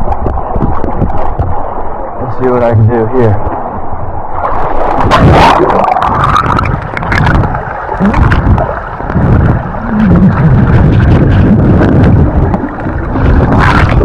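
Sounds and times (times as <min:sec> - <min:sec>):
water splashes: 0:00.0 - 0:14.0
river water sloshing and gurgling: 0:03.2 - 0:14.0.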